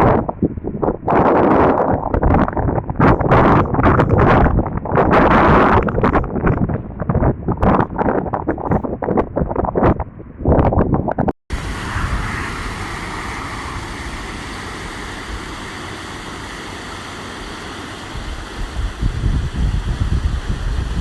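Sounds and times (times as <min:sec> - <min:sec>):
low gusty buffeting: 0:00.0 - 0:21.0
floodwater rushing: 0:11.5 - 0:21.0.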